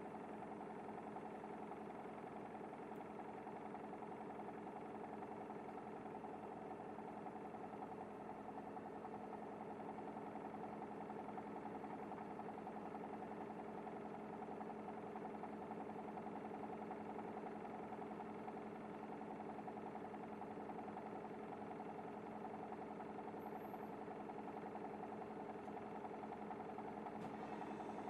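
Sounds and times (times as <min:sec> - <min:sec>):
bus engine idling: 0:23.6 - 0:28.0
bus engine humming: 0:26.8 - 0:28.0.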